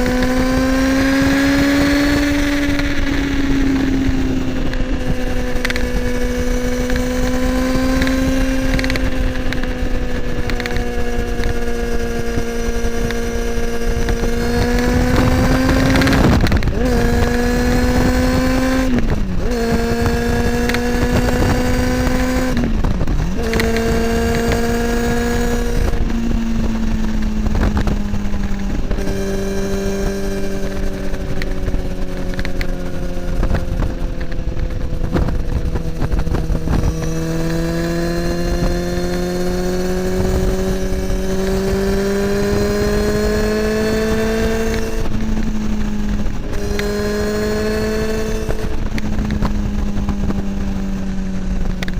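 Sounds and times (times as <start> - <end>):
motorcycle engine while riding: 0.0 - 51.9.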